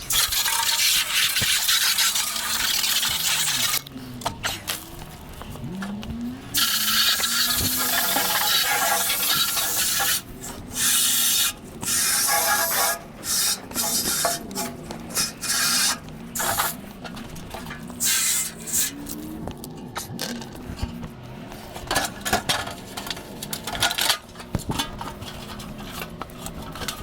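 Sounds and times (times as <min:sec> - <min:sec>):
water spray hissing: 0:00.1 - 0:03.8, 0:06.6 - 0:10.2, 0:10.8 - 0:16.8.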